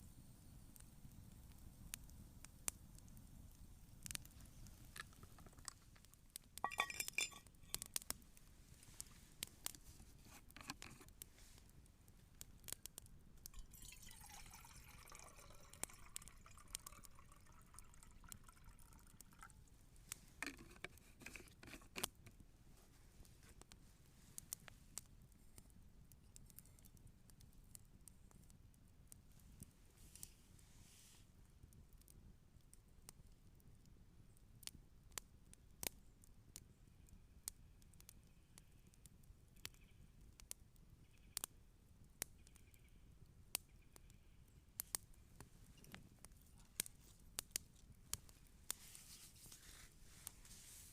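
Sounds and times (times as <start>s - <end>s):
campfire crackling: 0.0s - 50.9s
glassy clinks: 6.6s - 7.8s
liquid being poured: 6.6s - 7.8s, 13.5s - 19.6s.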